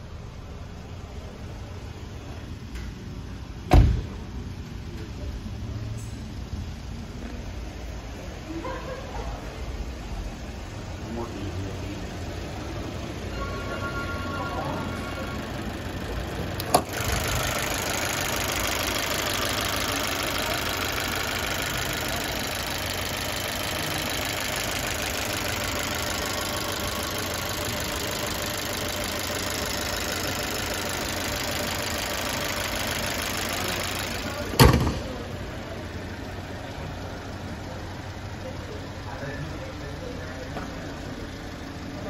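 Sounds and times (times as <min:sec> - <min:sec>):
car engine idling: 0:00.0 - 0:42.0
car hood thumping shut: 0:03.7 - 0:04.2, 0:34.5 - 0:35.2.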